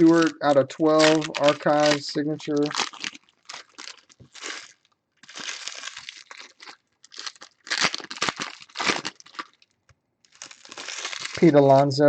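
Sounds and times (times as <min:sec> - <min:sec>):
wrappers crinkling and tearing: 0:00.0 - 0:11.7.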